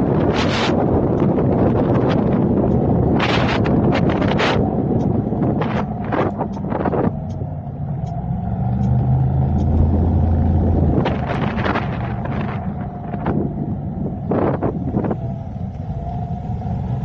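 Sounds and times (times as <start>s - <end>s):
deep engine drone: 0.0s - 17.0s
road and engine rumble: 0.0s - 17.0s
wind on microphone: 0.0s - 17.0s.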